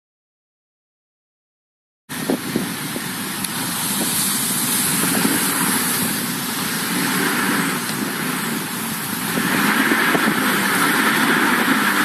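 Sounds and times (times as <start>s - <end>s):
engine rumble: 2.1s - 12.0s
loud steady hiss: 2.1s - 12.0s.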